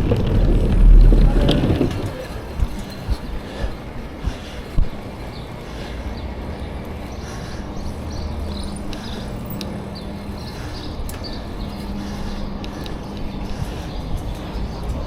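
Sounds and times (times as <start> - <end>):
faint low hum: 0.0 - 4.5
wind on microphone: 0.0 - 5.0
bicycle tyre rumble: 0.0 - 15.0
light ticks: 8.9 - 9.8, 11.0 - 11.4.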